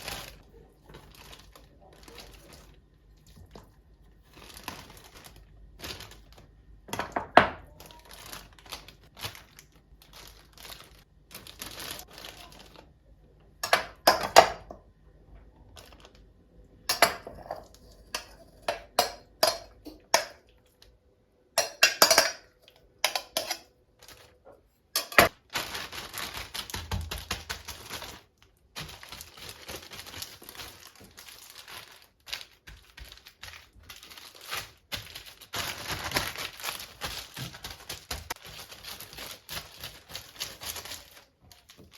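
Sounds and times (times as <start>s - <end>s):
plastic crinkling: 0.0s - 14.0s, 15.5s - 16.4s, 23.0s - 41.9s
dishes and utensils clinking: 16.9s - 20.4s, 21.6s - 23.7s, 25.0s - 25.3s.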